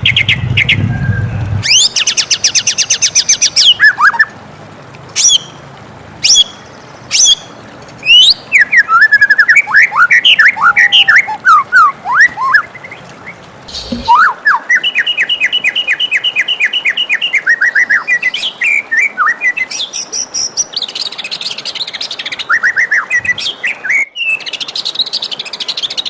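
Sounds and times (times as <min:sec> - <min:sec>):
bird singing whistled phrases: 0:00.0 - 0:04.3, 0:05.2 - 0:05.5, 0:06.2 - 0:20.6, 0:21.8 - 0:26.0
low hum: 0:13.6 - 0:14.2.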